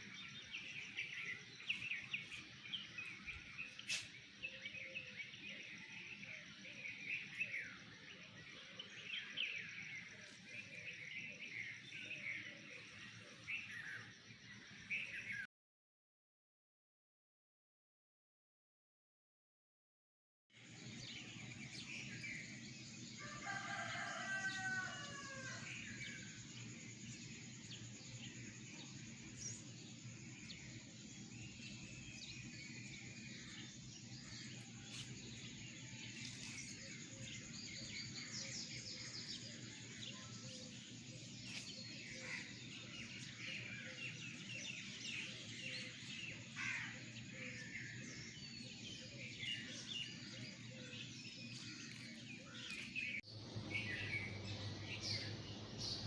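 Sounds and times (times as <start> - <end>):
birds chirping and calling: 0.0 - 12.9, 27.8 - 56.0
low background hum: 51.7 - 56.0.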